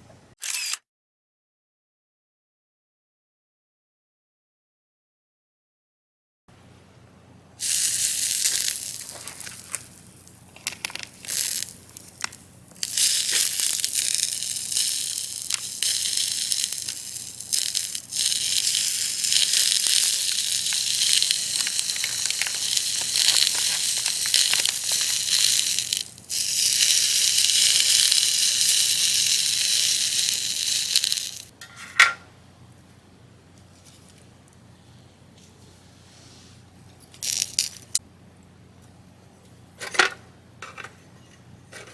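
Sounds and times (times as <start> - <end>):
food sizzling on griddle: 7.6 - 31.5, 37.2 - 38.0.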